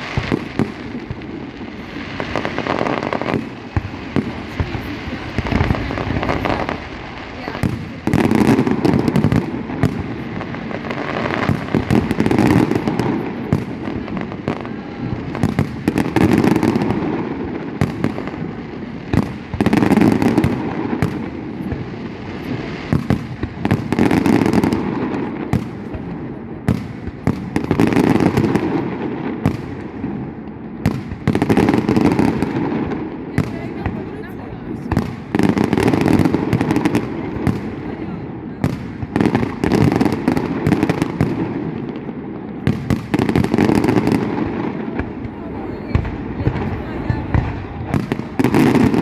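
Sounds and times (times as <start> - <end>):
fireworks bangs and crackling: 0.0 - 49.0.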